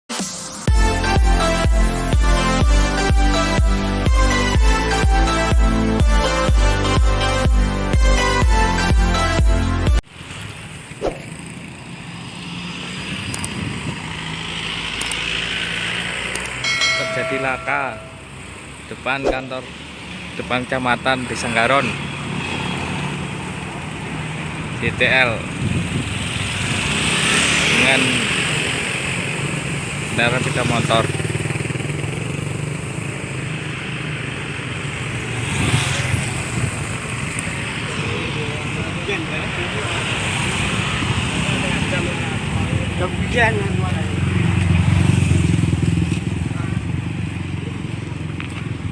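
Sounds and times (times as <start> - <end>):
road traffic engines and tyres: 0.3 - 48.9
vehicle passing close by: 25.4 - 48.4.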